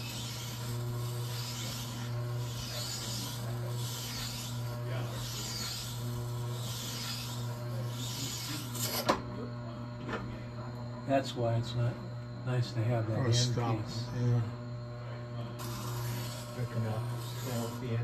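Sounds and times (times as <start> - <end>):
blade scraping on grinding stone: 0.0 - 9.1, 15.6 - 18.0
grinder motor humming: 0.0 - 18.0.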